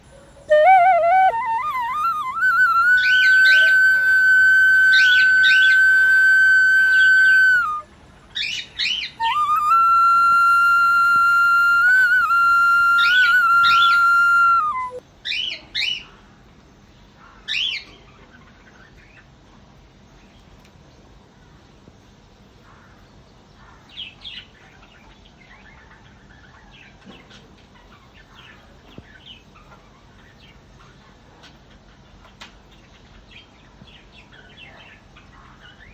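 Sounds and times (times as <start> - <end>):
flute music with sustained notes: 0.0 - 7.9, 9.1 - 15.0
bird chirps: 0.4 - 7.8, 8.4 - 15.4.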